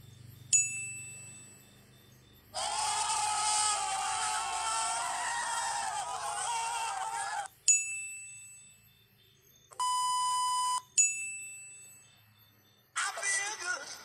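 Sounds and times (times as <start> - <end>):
young people yelling excitedly: 2.6 - 7.5
test-tone beep: 9.7 - 11.9.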